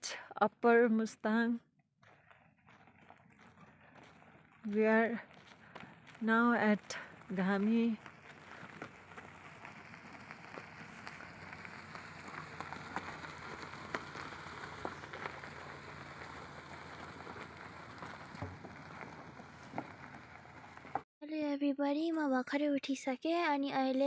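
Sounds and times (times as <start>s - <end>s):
car tyres rolling on gravel: 2.0s - 21.0s.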